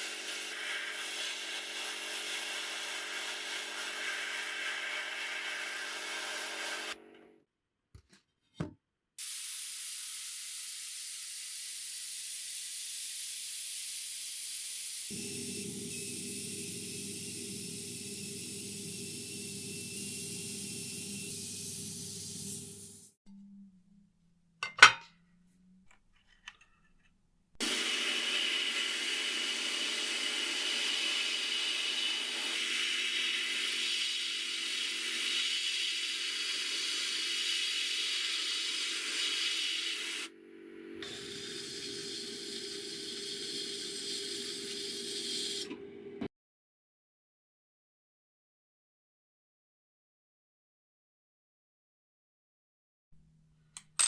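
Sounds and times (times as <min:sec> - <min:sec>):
spray hiss: 0:00.0 - 0:07.0, 0:09.2 - 0:23.1, 0:27.6 - 0:40.3.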